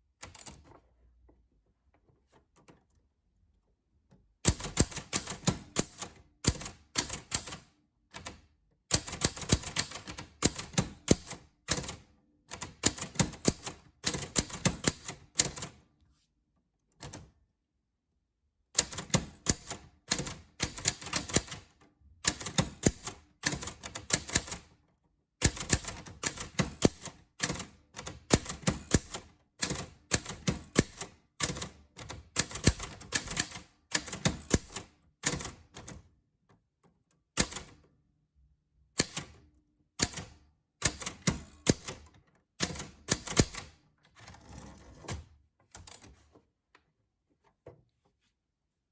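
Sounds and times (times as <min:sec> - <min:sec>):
typewriter keys clicking: 0:00.2 - 0:00.7, 0:04.4 - 0:15.8, 0:18.8 - 0:24.7, 0:25.4 - 0:36.0, 0:37.4 - 0:37.8, 0:39.0 - 0:39.4, 0:40.0 - 0:43.8.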